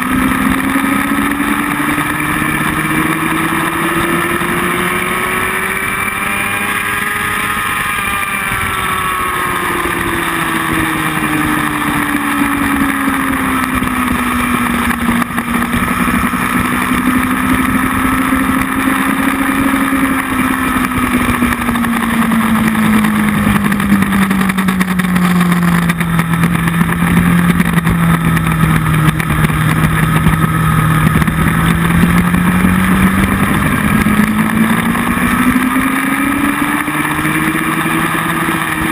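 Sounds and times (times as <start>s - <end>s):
motorcycle engine running: 0.0s - 38.9s
wind noise: 0.0s - 38.9s.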